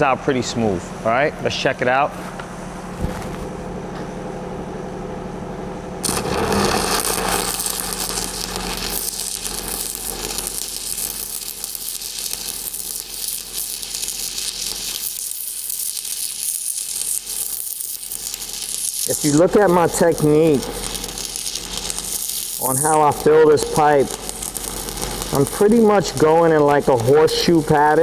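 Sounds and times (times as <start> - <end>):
welding arc crackling: 6.0 - 28.0
steady hum: 19.1 - 28.0.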